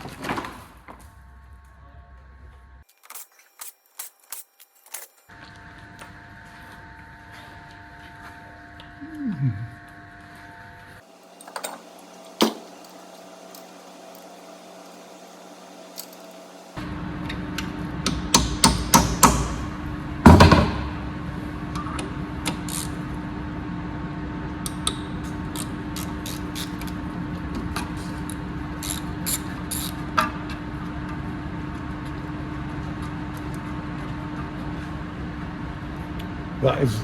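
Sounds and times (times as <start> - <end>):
steady hum: 5.3 - 37.0
hammer striking metal: 18.0 - 19.7.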